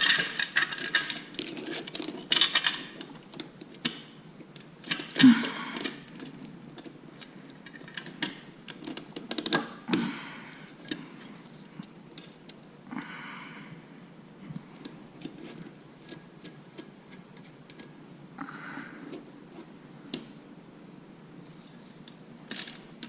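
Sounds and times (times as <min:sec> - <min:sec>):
metallic clicks and clinks of tools: 0:00.0 - 0:04.0.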